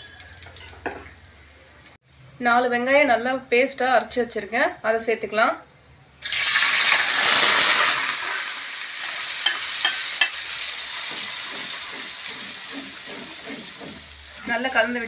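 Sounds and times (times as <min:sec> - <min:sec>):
paste sizzling in hot oil: 0:06.2 - 0:15.0
ladle stirring in a pan: 0:09.2 - 0:14.8.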